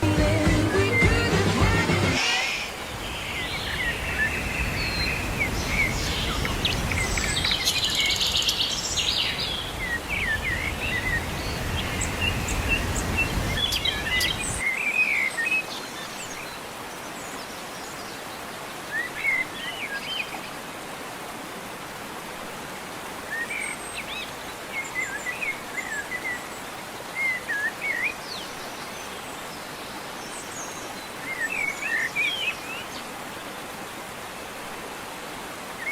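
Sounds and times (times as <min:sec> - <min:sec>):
waterfall rushing: 0:00.0 - 0:35.9
small birds chirping: 0:02.2 - 0:18.2.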